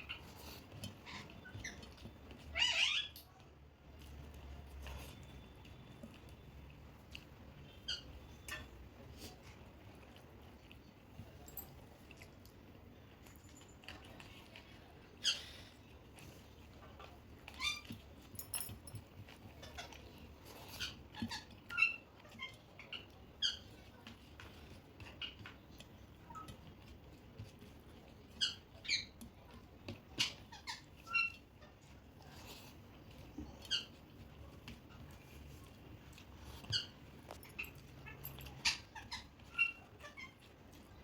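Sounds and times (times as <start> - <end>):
parrot chirping: 2.5 - 3.2, 7.6 - 8.7, 28.4 - 29.2, 30.2 - 31.7, 33.6 - 34.0, 36.6 - 37.0.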